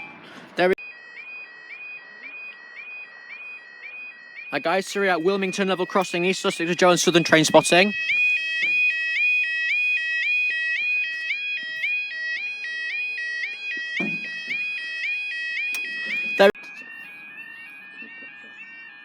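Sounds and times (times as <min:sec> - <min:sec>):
level crossing two-tone alarm: 0:00.0 - 0:19.0.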